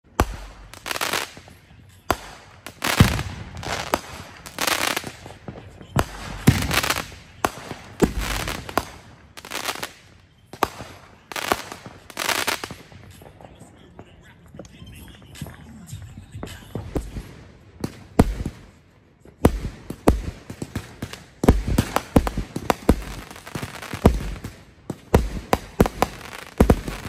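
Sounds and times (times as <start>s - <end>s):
fireworks bangs: 0.0s - 27.0s
firework hiss: 2.1s - 13.2s.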